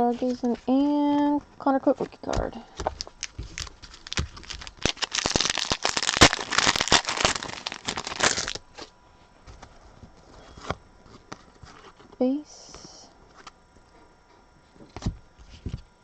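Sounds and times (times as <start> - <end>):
wrapper crackling: 2.1 - 8.8.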